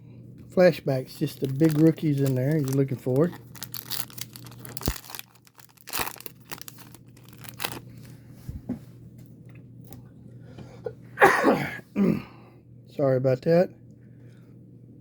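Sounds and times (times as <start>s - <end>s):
wrapper crinkling and tearing: 1.1s - 8.2s
person coughing: 11.2s - 12.4s.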